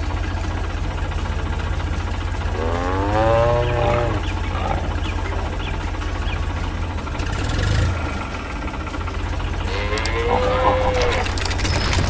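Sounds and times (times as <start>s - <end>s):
tractor engine rumbling: 0.0s - 12.0s
cow mooing: 2.5s - 5.6s, 9.6s - 11.6s.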